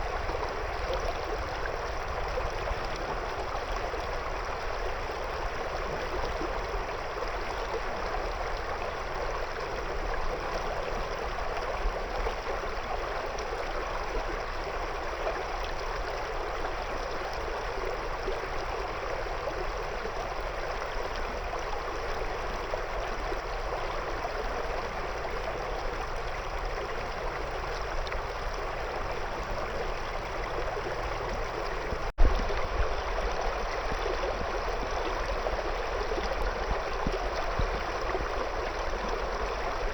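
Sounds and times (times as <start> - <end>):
river water flowing around stones: 0.0 - 39.9.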